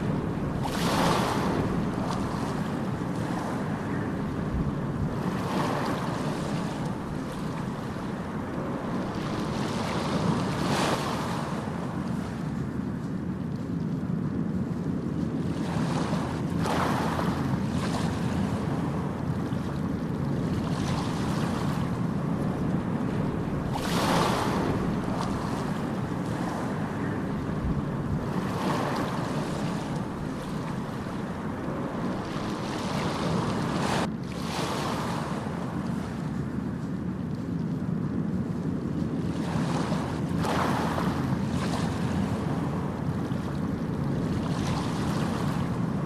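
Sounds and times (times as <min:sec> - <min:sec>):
surf washes hissing: 0:00.0 - 0:12.3, 0:19.6 - 0:35.6
waves breaking: 0:00.0 - 0:46.0.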